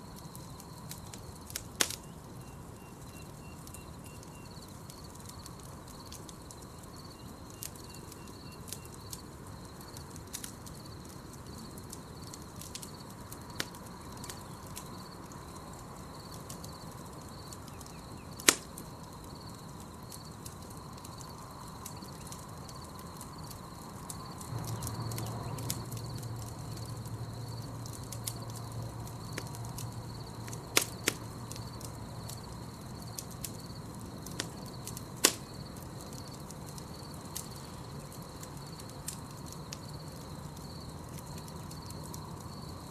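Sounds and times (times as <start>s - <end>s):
campfire crackling and popping: 0.0s - 42.9s
night insects chirping: 0.0s - 42.9s.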